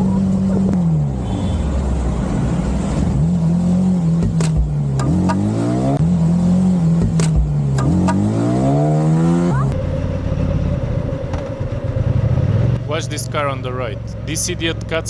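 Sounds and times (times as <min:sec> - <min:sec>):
motorcycle engine running: 0:09.5 - 0:15.0.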